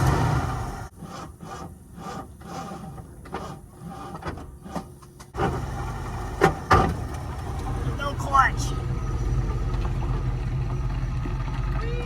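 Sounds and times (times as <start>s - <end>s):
pickup truck engine running low: 5.4s - 12.0s.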